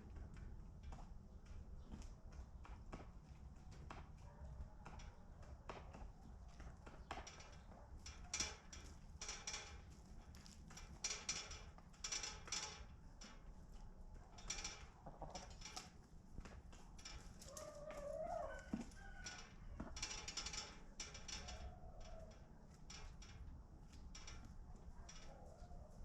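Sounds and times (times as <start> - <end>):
chickens scratching: 16.6 - 20.0, 23.9 - 26.0
chickens pecking: 17.4 - 20.0.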